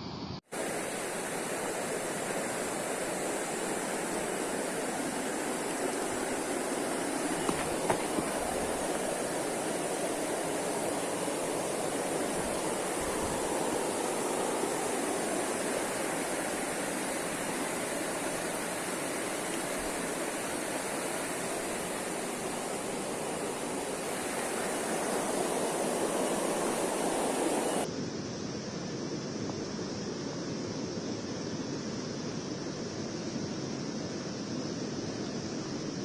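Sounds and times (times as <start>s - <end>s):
water rushing: 0.5s - 27.9s.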